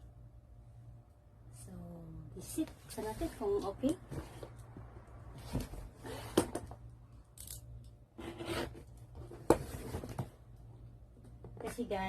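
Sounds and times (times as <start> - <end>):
cardboard scraping and rustling: 8.2 - 10.3.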